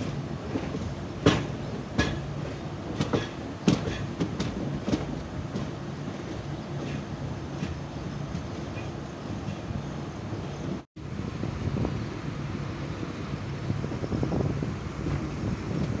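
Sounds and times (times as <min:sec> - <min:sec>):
wheels clacking over rail joints: 0:00.0 - 0:10.8
passenger train rumbling: 0:00.0 - 0:16.0.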